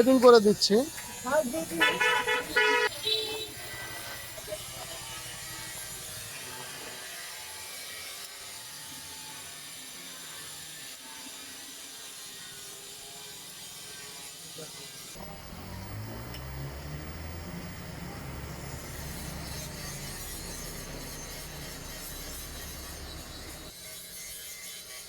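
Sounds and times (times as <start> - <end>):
short whirring: 15.2 - 23.7.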